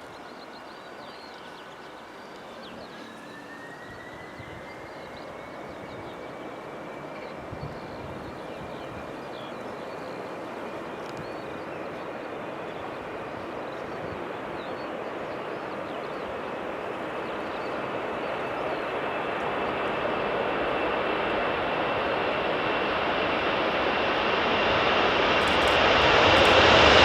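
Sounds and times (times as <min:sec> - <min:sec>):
jet engines at takeoff: 0:00.0 - 0:27.0.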